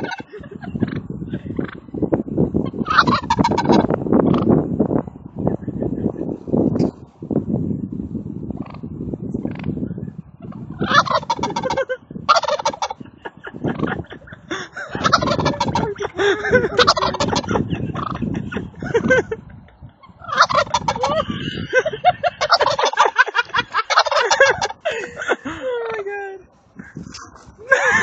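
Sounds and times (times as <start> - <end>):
turkey gobbling: 0.0 - 1.0, 1.6 - 1.8, 2.7 - 4.5, 10.7 - 13.0, 13.6 - 14.0, 14.9 - 18.8, 20.0 - 24.8.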